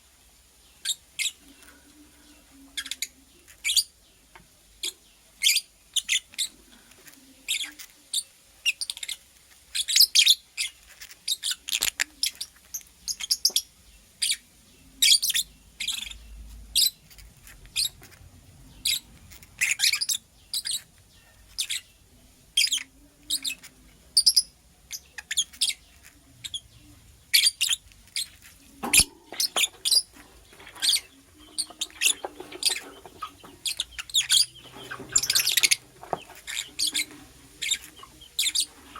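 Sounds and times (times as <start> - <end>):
lovebird chirping: 0.6 - 4.1, 4.8 - 6.6, 7.4 - 38.9.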